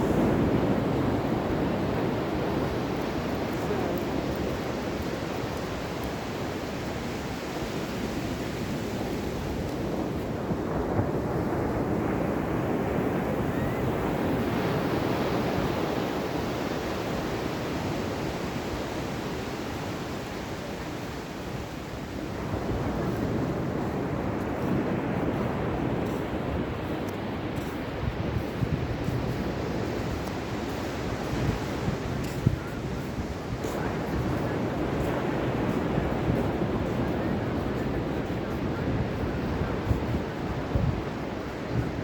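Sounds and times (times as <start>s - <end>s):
ocean waves washing on shore: 0.0s - 42.0s
wind buffeting microphone: 0.0s - 42.0s.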